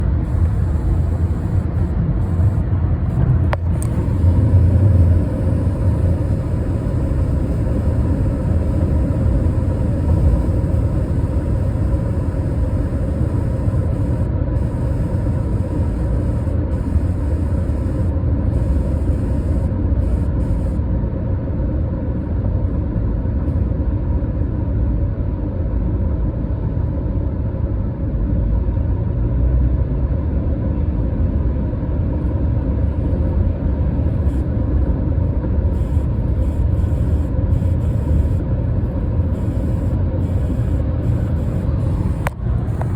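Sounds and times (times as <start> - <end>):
faint dashboard buzz: 0.0 - 21.0, 32.3 - 42.9
road and engine rumble in car: 0.0 - 42.9.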